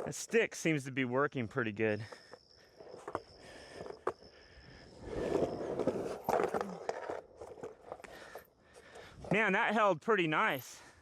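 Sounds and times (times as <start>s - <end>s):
skateboard wheels rolling: 4.9s - 8.1s.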